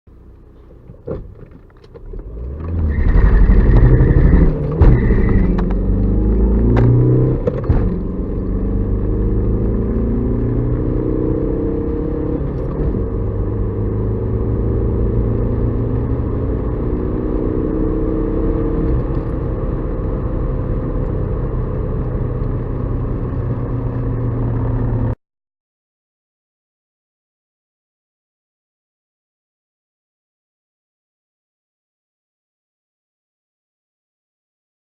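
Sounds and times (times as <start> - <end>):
diesel engine accelerating: 0.1 - 25.2.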